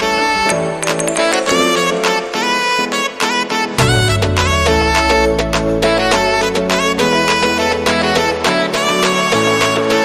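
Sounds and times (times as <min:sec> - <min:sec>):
instrumental music: 0:00.0 - 0:10.0.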